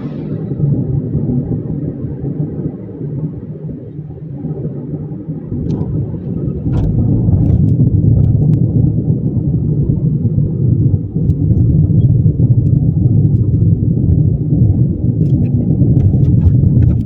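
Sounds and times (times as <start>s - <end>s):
train rumbling on track: 0.0s - 1.5s.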